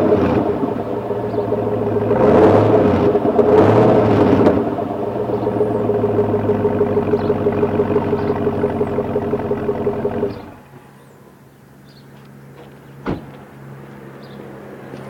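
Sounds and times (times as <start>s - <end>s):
car engine revving and idling: 0.0s - 10.8s.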